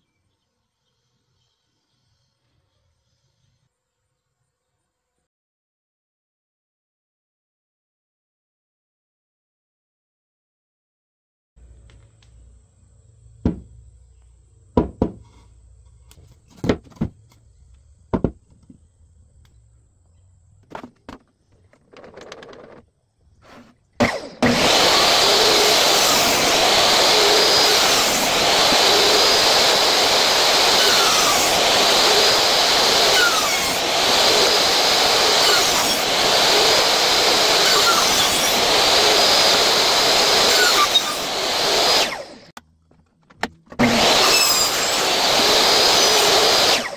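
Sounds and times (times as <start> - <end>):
knocks on wood: 13.4 - 13.7, 14.8 - 15.2, 16.6 - 17.2, 18.1 - 18.5
electric power tool running: 24.0 - 42.6, 43.8 - 46.9.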